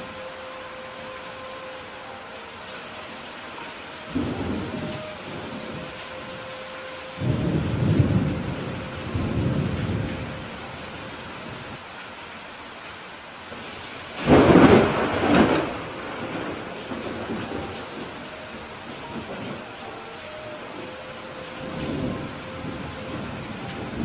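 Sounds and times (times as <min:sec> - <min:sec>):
steady rain: 0:00.0 - 0:24.0
thunder rumbling: 0:04.0 - 0:11.7, 0:14.2 - 0:24.0.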